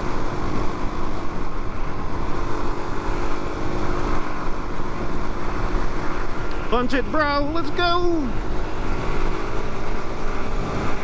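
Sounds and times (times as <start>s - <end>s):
motorcycle engine hum: 0.0s - 11.0s
wind buffeting microphone: 8.2s - 11.0s.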